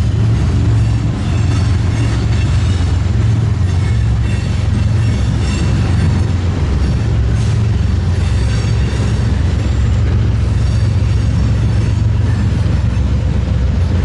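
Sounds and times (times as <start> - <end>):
train rumbling by: 0.0 - 14.0.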